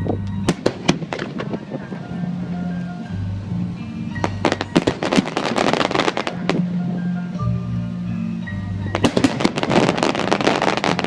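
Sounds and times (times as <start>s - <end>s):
music over loudspeakers: 0.0s - 11.0s
fireworks crackling and popping: 0.4s - 2.2s, 4.2s - 6.7s, 8.9s - 11.0s.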